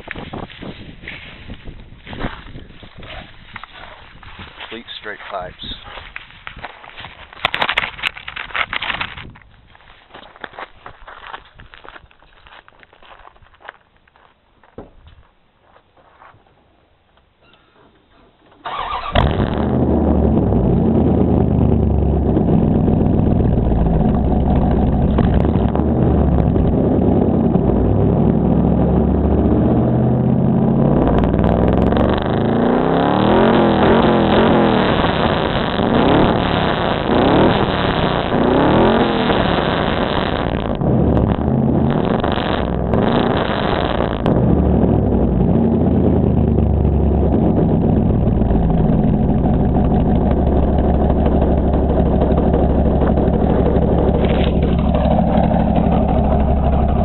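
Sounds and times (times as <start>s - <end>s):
loud truck engine idling and revving: 18.7s - 57.0s.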